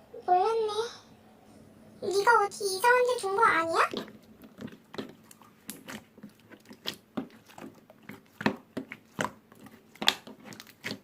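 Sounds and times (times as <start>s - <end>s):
slime squishing with sticky clicks: 3.8s - 11.0s.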